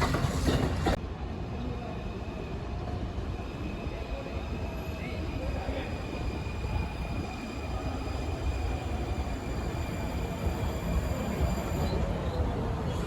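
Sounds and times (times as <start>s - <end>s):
train wheels rumbling on rails: 0.0s - 1.1s.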